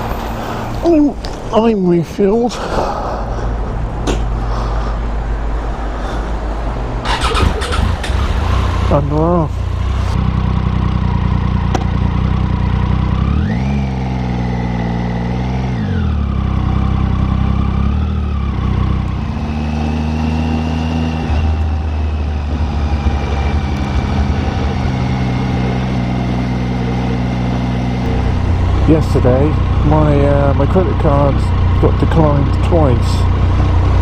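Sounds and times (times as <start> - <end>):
motorcycle engine pulling away: 7.0 - 9.0, 9.8 - 34.0
high whine: 20.5 - 34.0.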